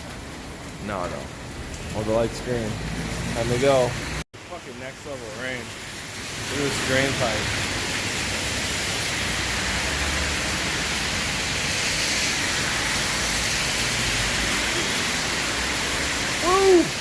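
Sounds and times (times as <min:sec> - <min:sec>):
heavy rain pouring: 0:00.0 - 0:17.0
water gushing from drain pipe: 0:00.0 - 0:17.0.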